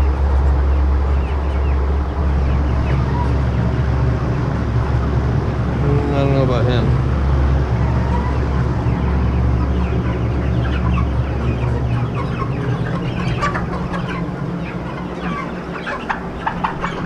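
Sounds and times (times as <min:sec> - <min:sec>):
chickens clucking and chirping: 0:00.0 - 0:17.0
steady low hum: 0:00.0 - 0:17.0.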